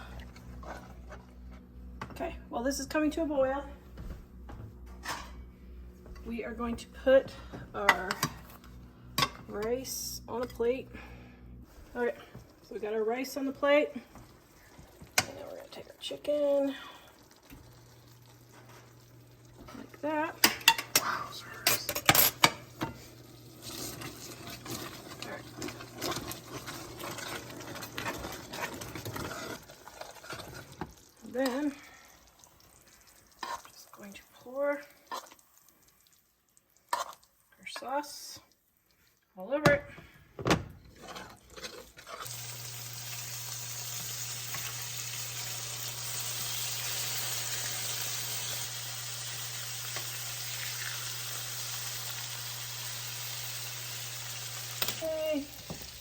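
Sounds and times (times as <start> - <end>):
low hum: 0.0 - 12.8
low steady hum: 0.0 - 27.9
chicken frying in a pan: 13.4 - 20.8, 24.2 - 38.3, 42.2 - 56.0.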